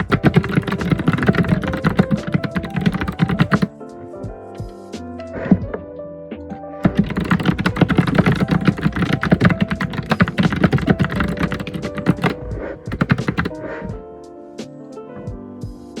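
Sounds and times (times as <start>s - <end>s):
computer keyboard typing: 0.0s - 3.7s, 6.8s - 13.6s
background music with held notes: 0.0s - 16.0s.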